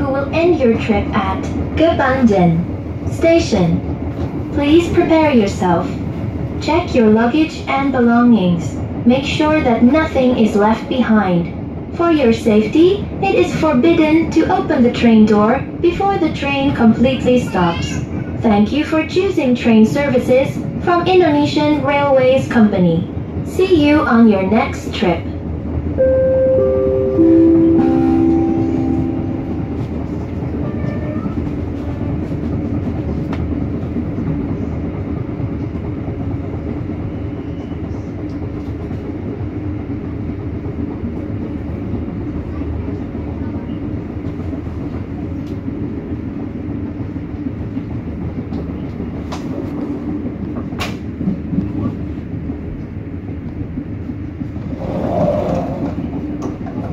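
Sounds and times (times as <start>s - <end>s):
train wheels rumbling on rails: 0.0s - 56.9s
announcement chime: 26.0s - 30.2s.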